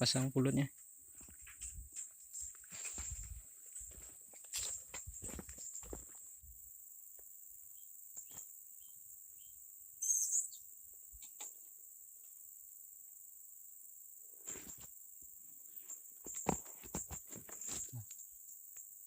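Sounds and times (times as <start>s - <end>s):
insect drone: 0.0s - 19.0s
faint bird chirps: 7.6s - 11.7s.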